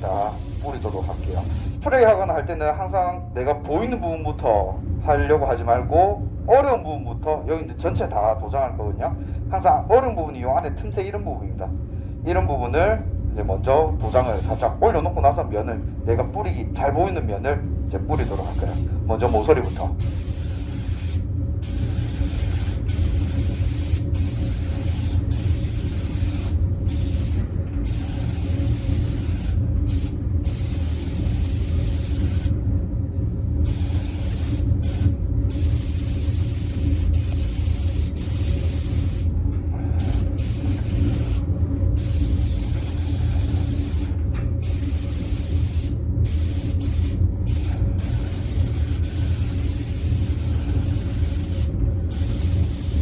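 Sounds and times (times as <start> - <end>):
spray gun hissing: 0.0 - 1.8, 14.0 - 14.7, 18.2 - 32.6, 33.7 - 39.3, 40.0 - 41.4, 42.0 - 53.0
steady low hum: 0.0 - 53.0.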